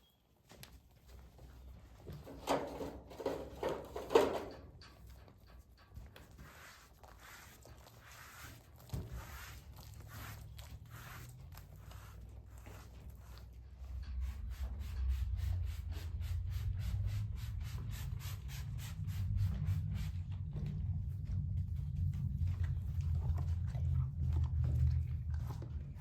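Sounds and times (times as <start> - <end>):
brush scratching over horse coat: 6.0 - 20.5
low rumble: 9.9 - 26.0.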